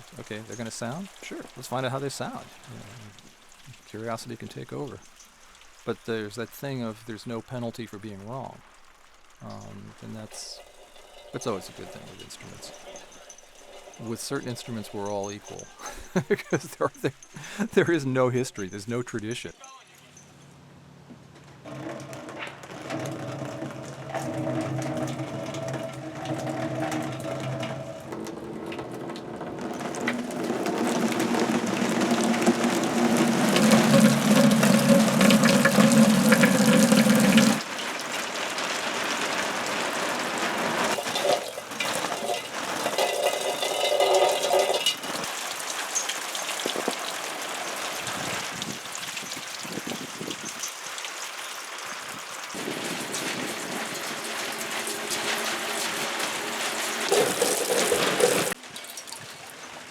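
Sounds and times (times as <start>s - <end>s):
water splashing onto objects: 0.0s - 19.4s, 22.6s - 59.9s
ringing pitched tones: 9.4s - 20.4s.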